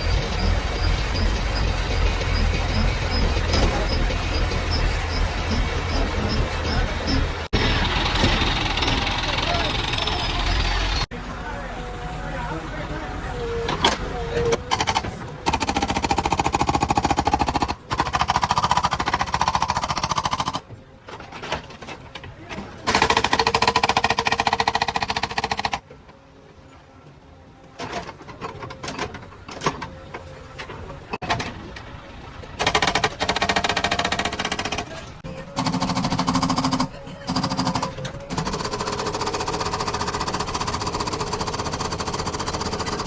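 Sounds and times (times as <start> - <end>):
hydraulic breaker hammering: 0.0 - 11.1
engine running: 0.0 - 18.2.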